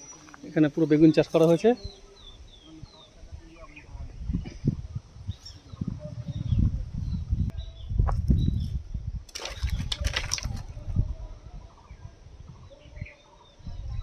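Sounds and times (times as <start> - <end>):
wind buffeting microphone: 3.2 - 14.0.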